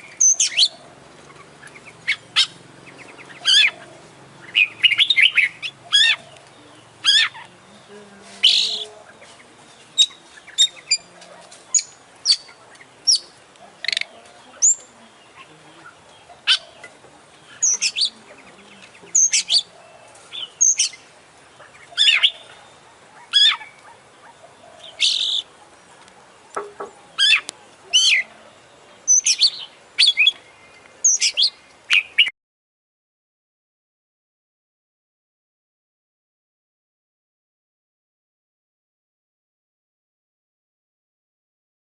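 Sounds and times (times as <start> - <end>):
songbird chirping and whistling: 0.0 - 25.5, 26.5 - 32.3.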